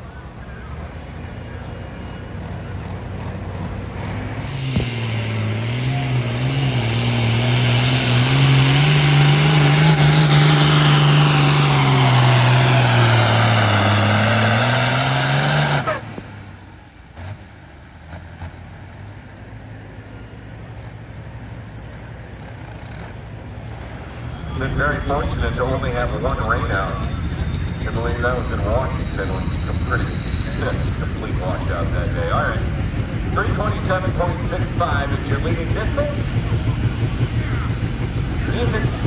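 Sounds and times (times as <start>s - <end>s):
pulling engine at full throttle: 0.0s - 39.0s.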